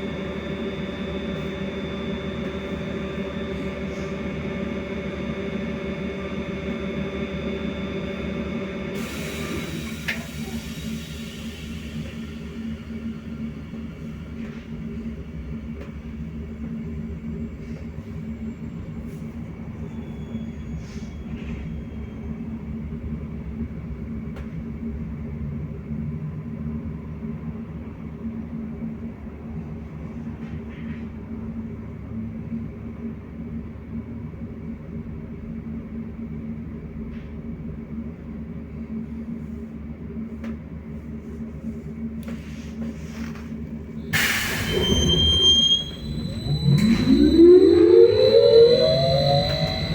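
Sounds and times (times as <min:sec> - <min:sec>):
trolleybus interior rumble: 0:00.0 - 0:49.9
faint high whine: 0:44.8 - 0:49.9.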